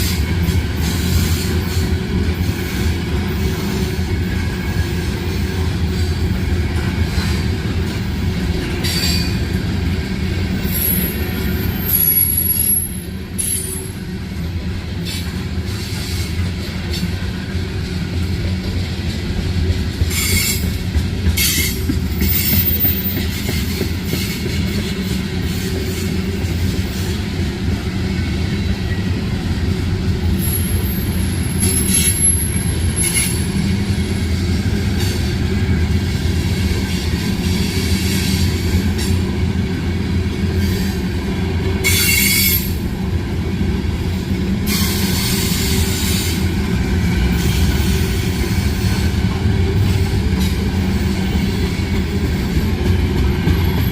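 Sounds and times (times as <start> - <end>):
freight train rumbling past: 0.0 - 53.9
high-pitched wheel squeals: 10.8 - 13.9, 30.4 - 33.5.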